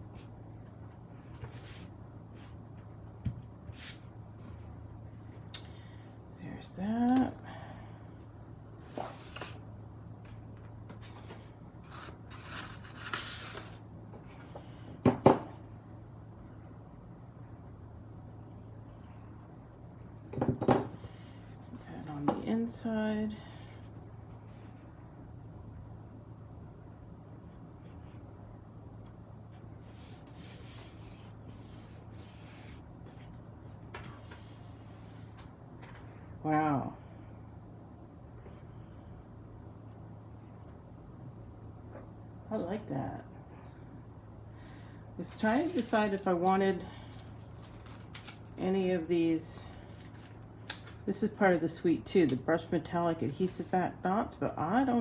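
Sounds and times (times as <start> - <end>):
low steady hum: 0.0 - 55.0
paper and card rustling: 10.9 - 13.8, 29.9 - 33.4, 45.2 - 49.0, 49.7 - 51.0.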